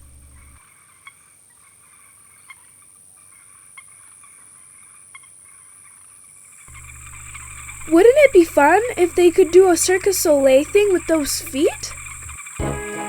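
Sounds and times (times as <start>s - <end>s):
high insect-like hum: 0.0s - 0.6s, 6.5s - 13.0s.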